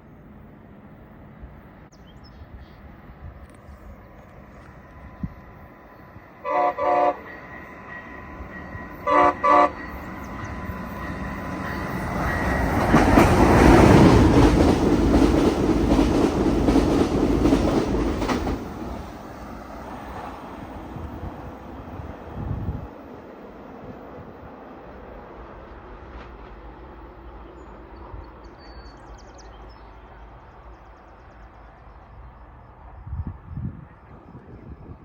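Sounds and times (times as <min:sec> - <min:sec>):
train wheels on rails: 0:03.3 - 0:23.2, 0:23.8 - 0:32.9
locomotive horn short blasts: 0:06.4 - 0:07.4, 0:09.0 - 0:09.9.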